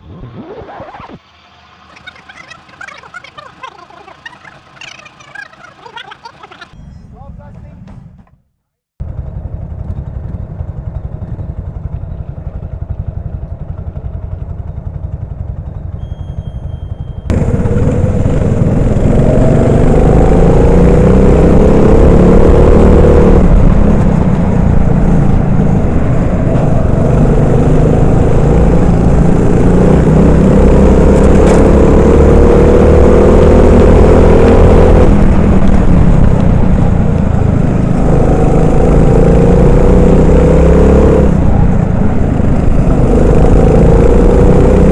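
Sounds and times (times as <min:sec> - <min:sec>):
kart engine revving: 0:09.1 - 0:44.9.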